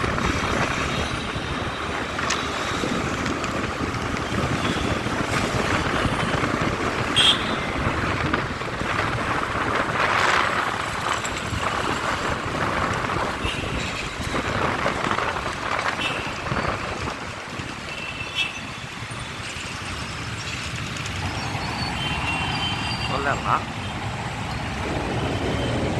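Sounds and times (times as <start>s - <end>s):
wind on microphone: 0.0s - 17.8s, 24.0s - 25.9s
road traffic passing: 0.0s - 25.9s.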